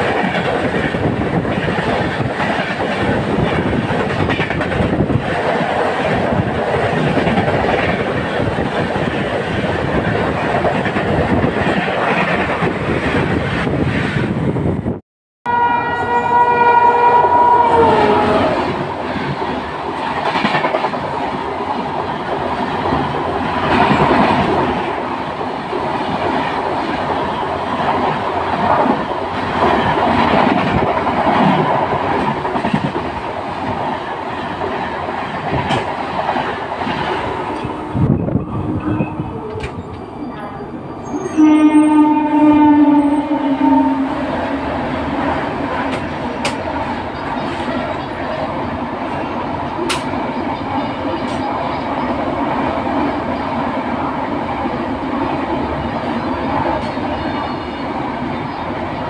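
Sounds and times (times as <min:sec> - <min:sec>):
train wheels clattering on rails: 0:00.0 - 0:13.6, 0:18.8 - 0:25.0, 0:25.6 - 0:40.1, 0:44.9 - 0:48.5, 0:49.2 - 0:52.4
passing train: 0:00.0 - 0:59.0
train horn: 0:15.5 - 0:18.8, 0:37.3 - 0:39.7, 0:41.0 - 0:44.7.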